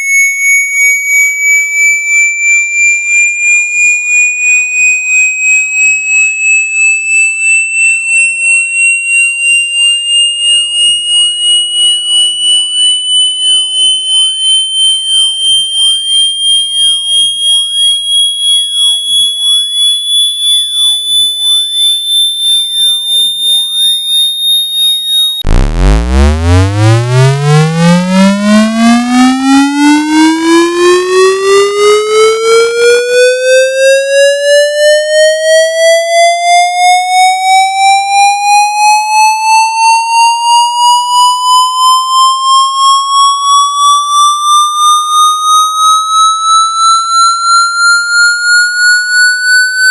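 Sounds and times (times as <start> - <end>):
high electronic sweep tone: 11.1 - 16.5, 25.0 - 33.3, 43.4 - 49.9
buzzy rising tone: 25.4 - 29.3.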